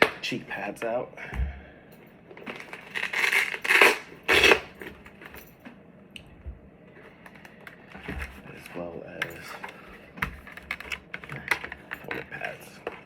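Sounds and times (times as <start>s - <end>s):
helmet pads rustling and scraping: 6.9s - 13.0s.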